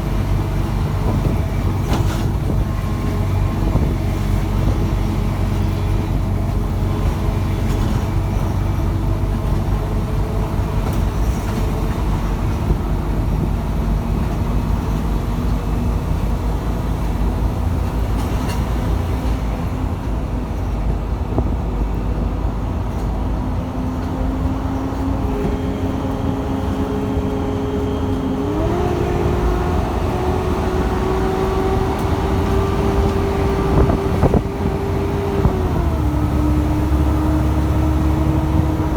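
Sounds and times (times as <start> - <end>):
bus engine rumble: 0.0 - 38.9.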